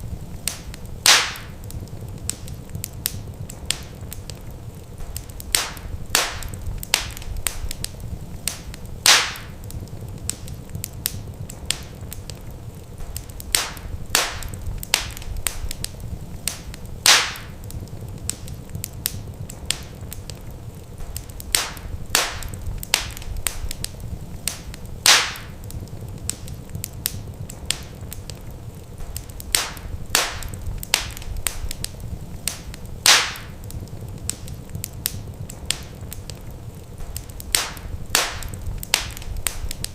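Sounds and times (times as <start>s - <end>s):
wood fire crackling and popping: 0.0s - 39.9s
low rumble: 5.4s - 9.0s, 11.2s - 16.5s, 21.4s - 24.5s, 29.4s - 32.5s, 37.4s - 39.9s.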